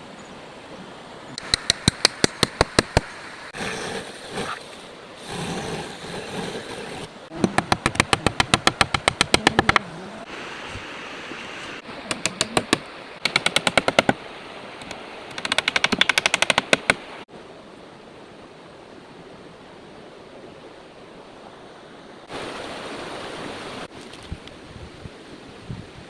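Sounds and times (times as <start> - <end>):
sharp rattling clicks: 14.8 - 17.0.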